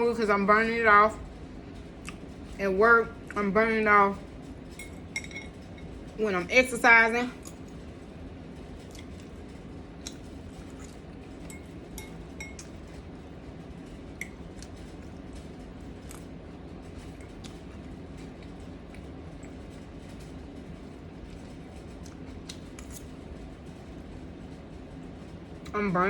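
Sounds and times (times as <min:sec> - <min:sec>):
low room hum: 0:00.0 - 0:26.0
cutlery clinking in a bowl: 0:04.7 - 0:05.8, 0:10.8 - 0:12.8.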